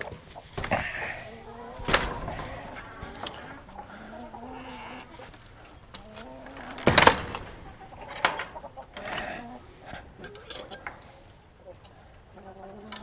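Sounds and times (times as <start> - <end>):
hens clucking: 0.0 - 13.0
sudden loud noise: 0.6 - 4.8.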